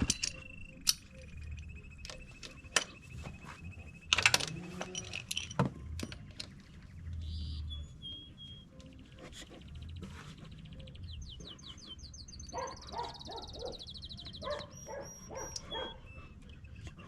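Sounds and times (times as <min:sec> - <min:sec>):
birds chirping and trilling: 0:00.0 - 0:17.0
dog whining and yipping: 0:14.4 - 0:16.4.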